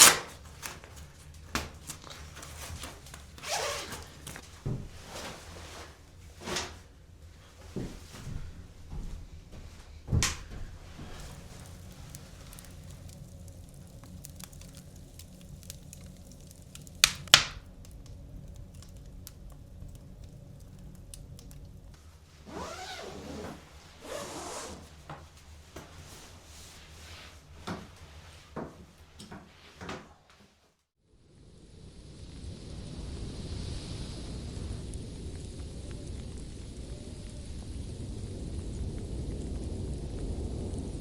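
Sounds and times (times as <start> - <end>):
steady low hum: 0.0 - 29.2, 31.2 - 41.0
faint crackles: 0.0 - 30.6, 31.4 - 41.0
noisy rustling: 0.0 - 30.8.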